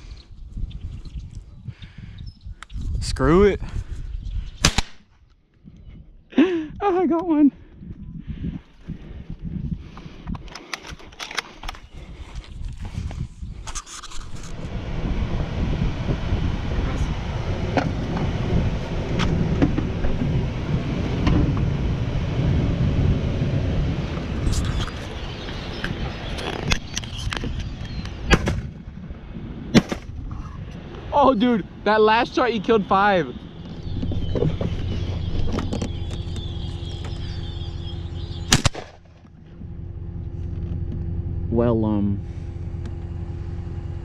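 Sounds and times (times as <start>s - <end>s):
wind buffeting microphone: 0.0s - 5.0s, 5.6s - 38.8s
low rumble: 0.0s - 44.0s
gunshots: 4.6s - 5.0s, 38.5s - 39.1s
blackbirds chattering: 24.4s - 28.3s, 31.2s - 38.7s.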